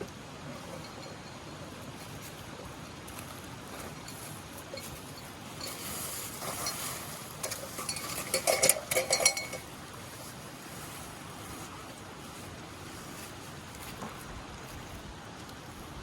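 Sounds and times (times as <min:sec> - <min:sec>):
camping gear rustling and clicking: 0:00.4 - 0:16.0
metallic clinks and knocks: 0:00.7 - 0:01.6, 0:03.8 - 0:09.7
wind hiss: 0:03.0 - 0:16.0.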